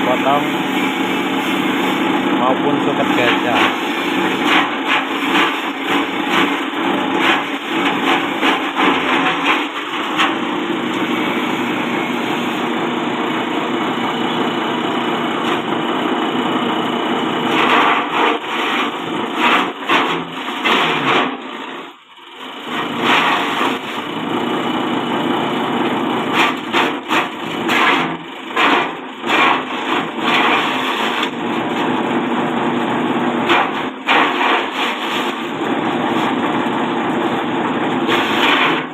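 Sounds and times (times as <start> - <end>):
forage chopper motor running: 0.0 - 38.9
blades chopping plant stalks: 26.3 - 31.4, 33.4 - 35.4.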